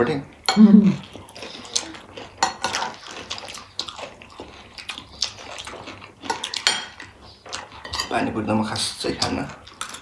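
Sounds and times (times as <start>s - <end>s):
wet chewing and mouth smacking: 1.0s - 8.0s.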